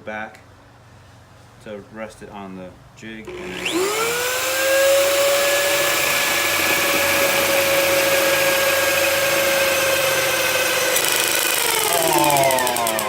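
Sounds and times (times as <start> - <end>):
electric drill boring into wood: 3.3 - 13.0.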